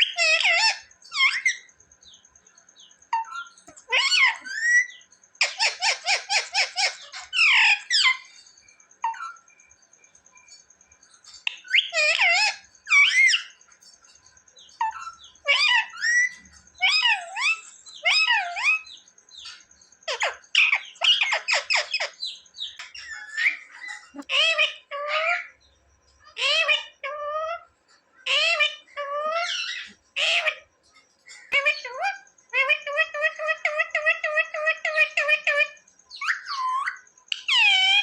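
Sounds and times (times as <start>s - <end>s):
parrot harsh chattering: 0.0s - 1.7s, 3.2s - 8.3s, 11.4s - 13.6s, 14.8s - 18.9s, 20.1s - 25.5s, 26.3s - 27.6s, 28.3s - 30.6s, 31.4s - 38.0s
parrot warbling calls: 0.0s - 1.7s, 3.2s - 8.3s, 11.5s - 13.5s, 14.8s - 18.9s, 20.1s - 25.5s, 26.3s - 27.6s, 28.3s - 30.6s, 31.5s - 38.0s.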